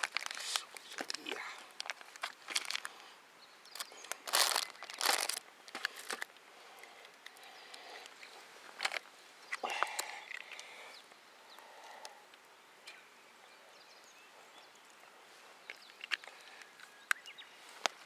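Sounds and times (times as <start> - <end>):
rustling and crinkling handling: 0.0 - 7.3, 8.0 - 9.2.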